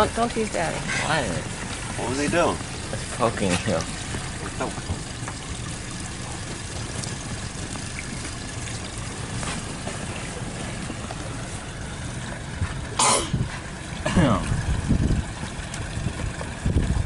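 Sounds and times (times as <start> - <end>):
boat engine hum: 0.0 - 17.0
water rushing and lapping: 0.0 - 17.0.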